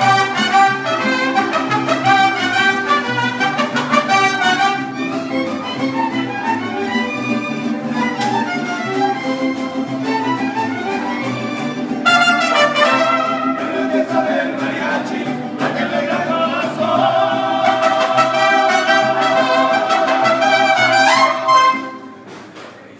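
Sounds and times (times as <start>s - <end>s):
trumpets: 0.0s - 14.0s, 17.5s - 22.2s
violins: 0.0s - 15.9s.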